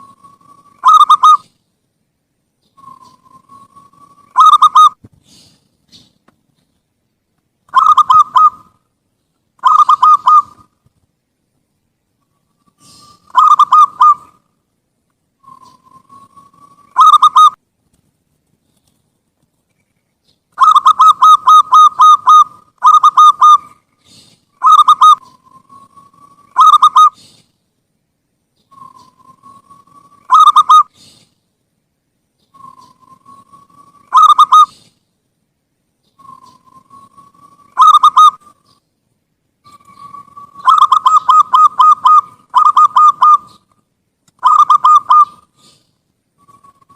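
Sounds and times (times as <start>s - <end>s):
dove cooing: 0.0s - 1.5s, 2.8s - 5.0s, 7.7s - 8.8s, 9.6s - 10.7s, 12.7s - 14.4s, 15.4s - 17.6s, 20.6s - 27.4s, 28.7s - 31.2s, 32.5s - 34.9s, 36.2s - 38.6s, 39.6s - 43.7s, 44.4s - 46.9s.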